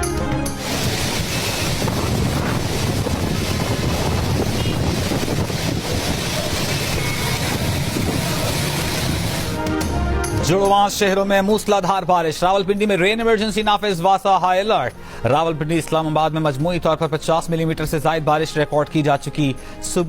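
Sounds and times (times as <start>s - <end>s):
heavy rain pouring: 0.5s - 9.8s.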